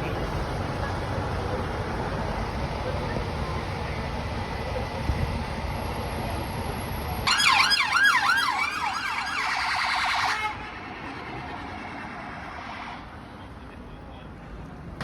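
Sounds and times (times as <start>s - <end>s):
low traffic rumble: 0.0s - 15.0s
emergency vehicle siren yelping: 7.1s - 13.1s.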